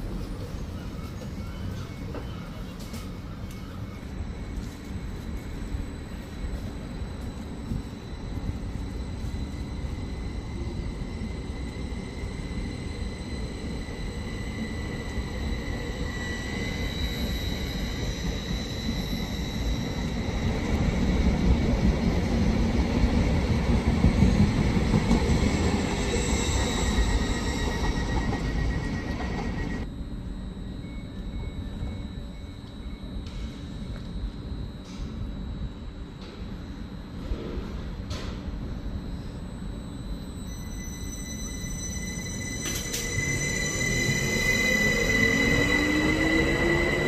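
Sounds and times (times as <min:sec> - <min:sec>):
train rumbling: 0:00.0 - 0:30.0, 0:40.5 - 0:47.0
high wheel squeal: 0:25.3 - 0:29.8, 0:40.4 - 0:47.0.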